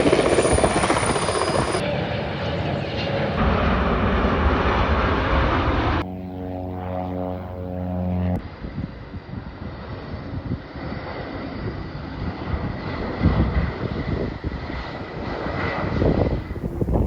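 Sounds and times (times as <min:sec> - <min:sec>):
jet airliner rumbling: 0:00.0 - 0:17.0
droning pitched hum: 0:03.4 - 0:09.0, 0:16.2 - 0:17.0.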